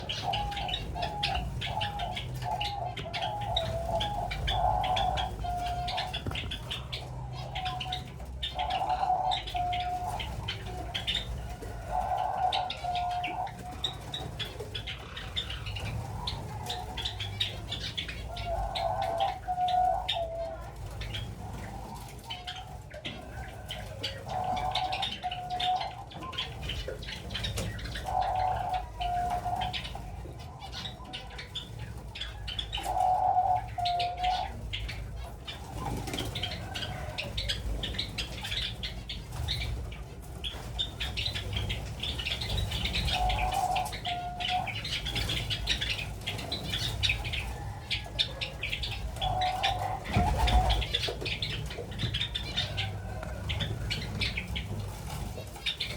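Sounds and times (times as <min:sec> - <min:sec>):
doves cooing: 0:00.0 - 0:55.9
sparrows chirping and twittering: 0:00.0 - 0:55.9
wings flapping: 0:00.0 - 0:55.9.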